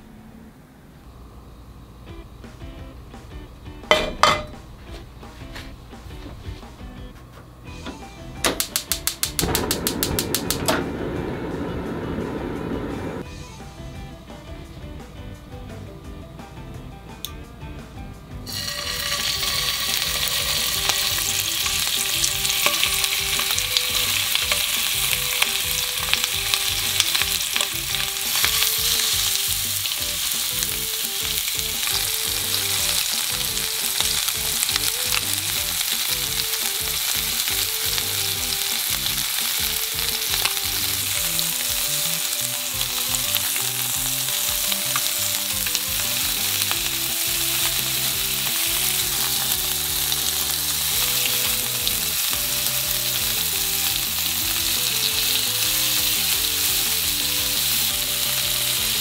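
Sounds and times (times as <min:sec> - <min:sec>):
meat sizzling in a frying pan: 0:18.5 - 0:59.0.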